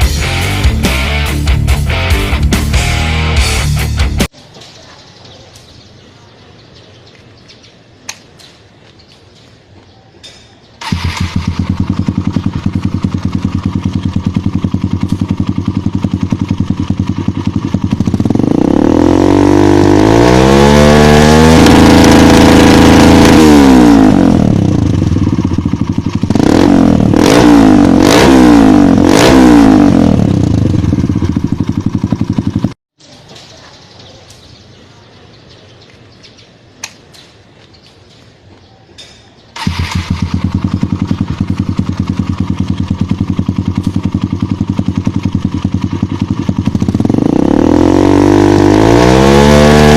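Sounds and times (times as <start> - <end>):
dirt bike engine revving: 10.8 - 32.8, 39.6 - 49.9.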